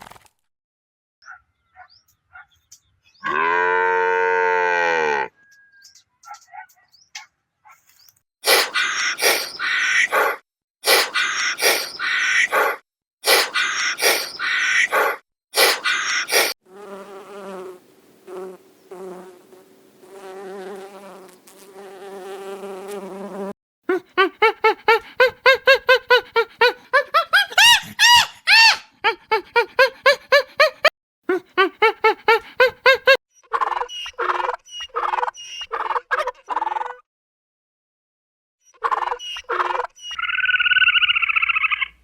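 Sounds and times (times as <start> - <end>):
fast short chirping calls: 8.5 - 10.1, 10.9 - 12.5, 13.3 - 14.9, 38.7 - 42.0
loud harsh calls: 8.5 - 16.5, 27.4 - 28.9
wasp buzzing: 15.6 - 23.6.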